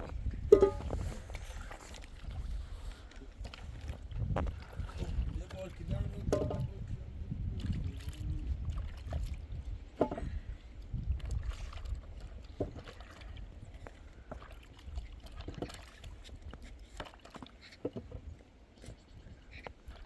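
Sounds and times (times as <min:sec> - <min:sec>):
wind buffeting microphone: 0:00.0 - 0:16.6.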